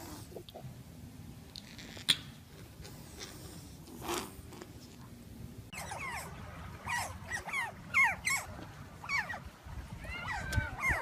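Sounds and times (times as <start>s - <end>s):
otters chirping: 5.7s - 9.4s.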